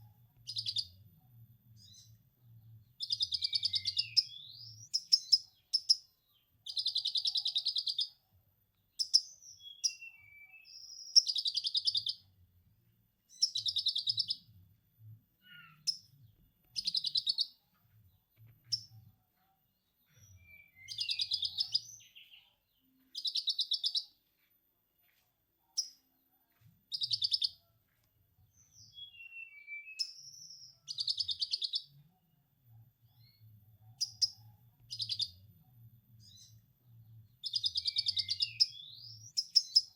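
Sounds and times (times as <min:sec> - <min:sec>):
whistled bird chirps: 0:03.0 - 0:06.0, 0:09.0 - 0:12.2, 0:20.2 - 0:22.4, 0:28.7 - 0:31.9, 0:37.4 - 0:39.9.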